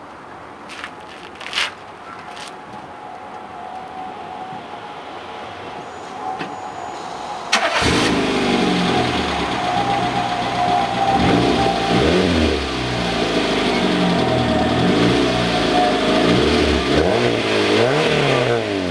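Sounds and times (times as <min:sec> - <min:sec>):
car engine starting and revving: 0:07.5 - 0:18.9.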